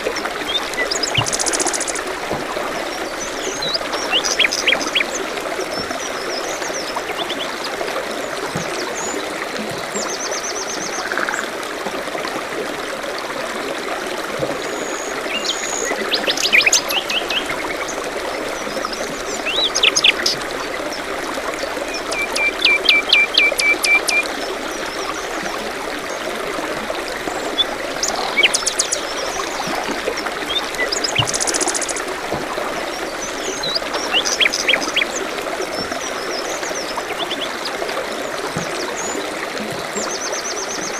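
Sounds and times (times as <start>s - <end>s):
stream running: 0.0s - 40.9s
songbirds chirping: 0.4s - 7.6s, 14.8s - 26.3s, 27.2s - 37.8s.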